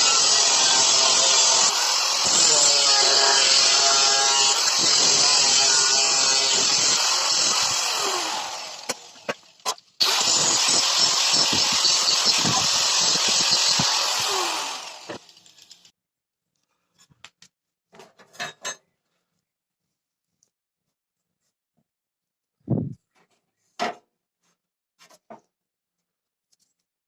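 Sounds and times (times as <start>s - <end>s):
electric power tool running: 0.0s - 15.9s.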